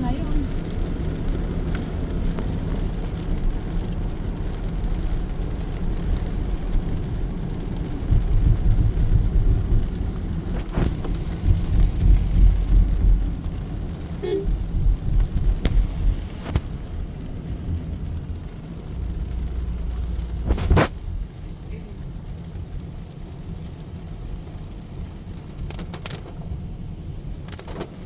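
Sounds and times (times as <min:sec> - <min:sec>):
steady rain: 0:00.0 - 0:28.0
traffic on wet pavement: 0:00.0 - 0:28.0
deep low rumbles: 0:07.8 - 0:23.3.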